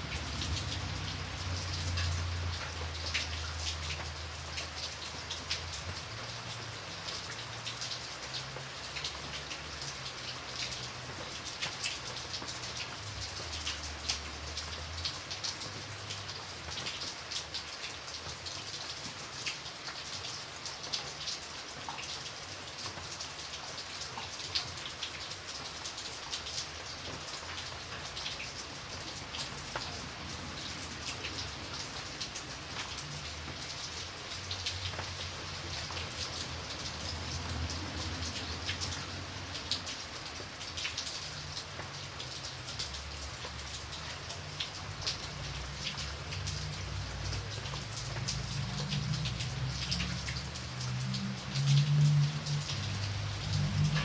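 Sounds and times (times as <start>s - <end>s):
rain hiss: 0.0s - 54.0s
raindrops ticking on hard surface: 0.0s - 54.0s.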